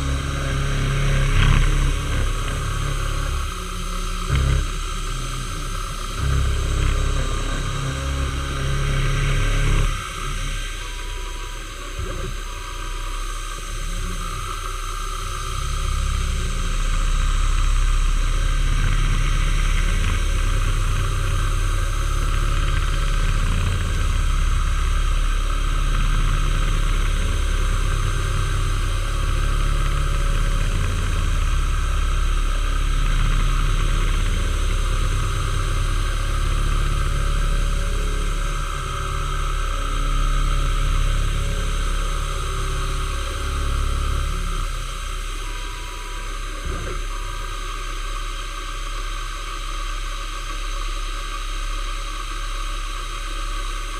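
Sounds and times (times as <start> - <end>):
machine tool humming: 0.0 - 53.9.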